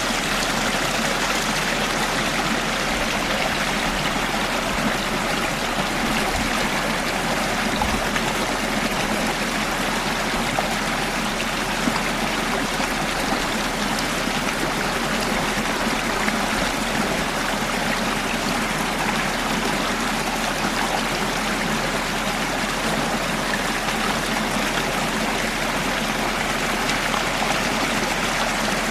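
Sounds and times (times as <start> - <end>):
stream water trickling: 0.0 - 28.9.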